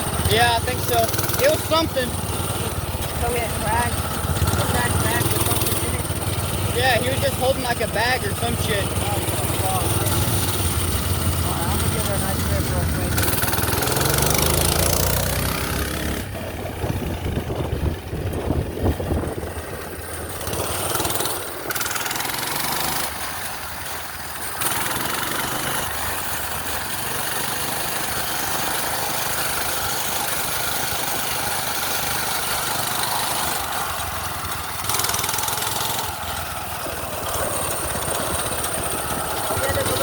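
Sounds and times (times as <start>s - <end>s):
small gas engine revving: 0.0s - 40.0s
wind noise: 16.4s - 19.9s.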